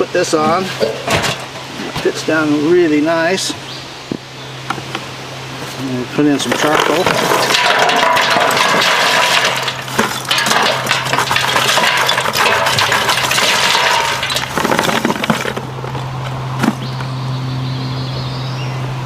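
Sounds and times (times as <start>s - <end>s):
charcoal clattering into metal barrel: 0.5s - 2.0s, 6.3s - 15.8s.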